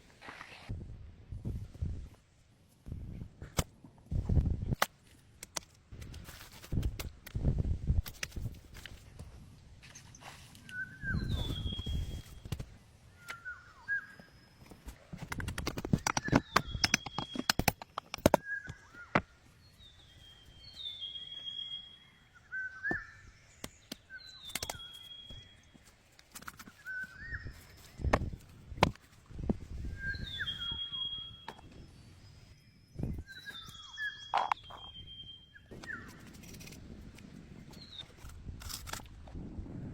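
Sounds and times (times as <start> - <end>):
bird whistling call: 13.2 - 14.3, 30.0 - 31.5.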